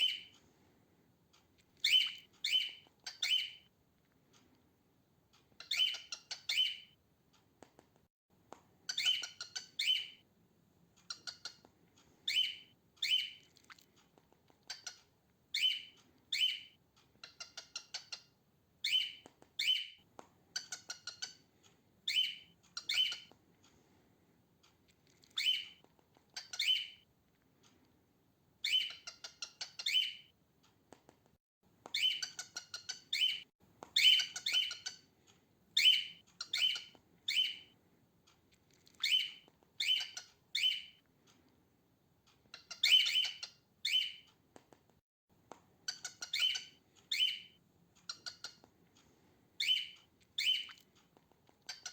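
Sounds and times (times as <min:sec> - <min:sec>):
cockatiel calling: 0:00.0 - 0:00.3, 0:01.8 - 0:03.7, 0:05.6 - 0:06.9, 0:08.9 - 0:10.2, 0:12.3 - 0:13.4, 0:15.6 - 0:20.0, 0:22.1 - 0:23.3, 0:25.4 - 0:25.8, 0:26.4 - 0:27.0, 0:28.6 - 0:30.3, 0:31.9 - 0:33.4, 0:34.0 - 0:35.1, 0:35.8 - 0:37.7, 0:39.0 - 0:41.0, 0:42.5 - 0:44.3, 0:45.9 - 0:48.6, 0:49.6 - 0:50.8.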